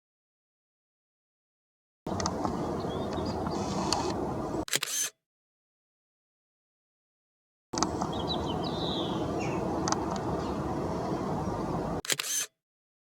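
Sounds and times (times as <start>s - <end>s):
low outdoor rumble: 2.1s - 4.6s, 7.8s - 12.0s
sparrow chirps: 2.6s - 4.1s, 8.0s - 11.7s
camera shutter clicking: 3.6s - 5.2s, 12.0s - 12.6s.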